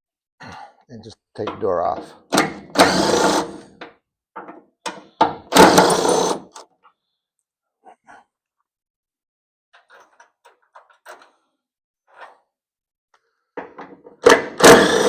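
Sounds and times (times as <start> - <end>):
cordless power tool running: 2.7 - 3.6.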